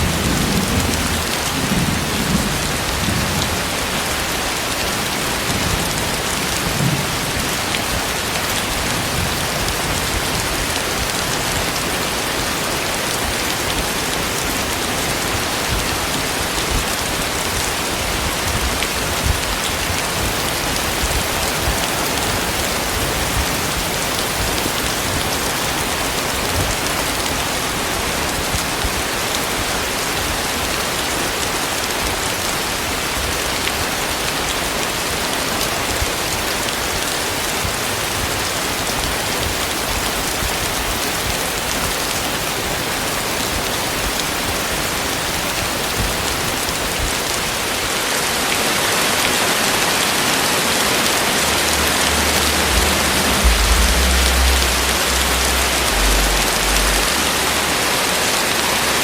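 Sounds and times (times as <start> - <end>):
heavy rain falling: 0.0 - 59.0
thunder rumble: 15.0 - 26.9, 50.6 - 58.1.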